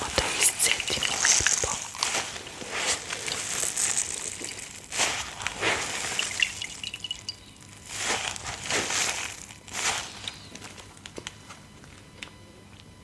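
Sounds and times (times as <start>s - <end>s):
water trickling and dripping: 0.0s - 10.4s
wet sponge squeezed: 0.0s - 10.5s.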